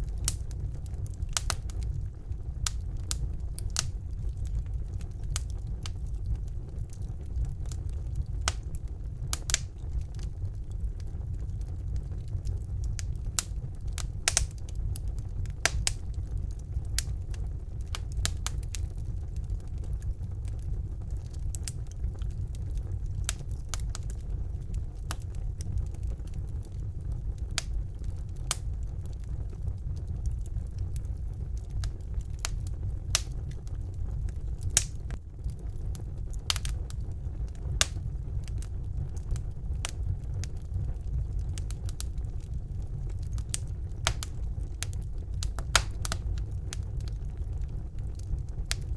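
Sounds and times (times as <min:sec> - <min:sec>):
wood fire crackling: 0:00.0 - 0:48.9.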